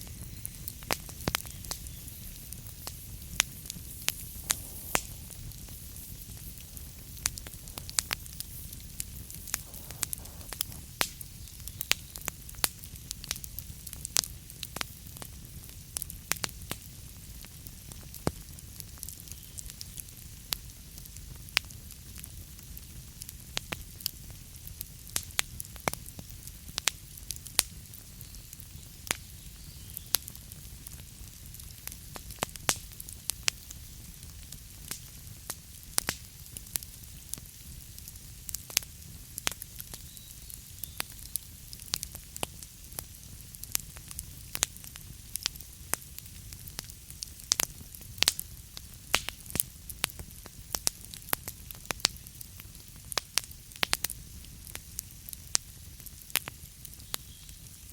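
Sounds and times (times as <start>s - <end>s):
low steady rumble: 0.0s - 11.4s
wood fire crackling: 0.0s - 57.9s.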